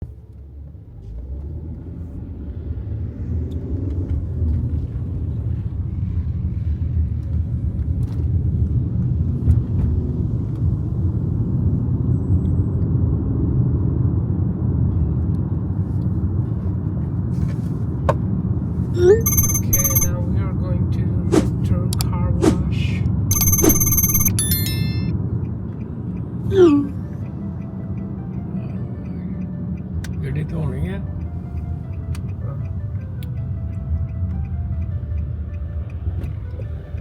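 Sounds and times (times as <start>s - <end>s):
car road and engine rumble: 0.0s - 37.0s
high chime-like tone: 19.0s - 20.3s, 23.3s - 25.1s.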